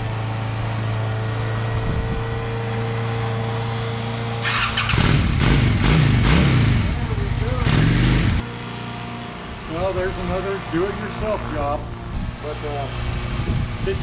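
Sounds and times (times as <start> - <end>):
motorcycle engine idling: 4.4 - 8.5.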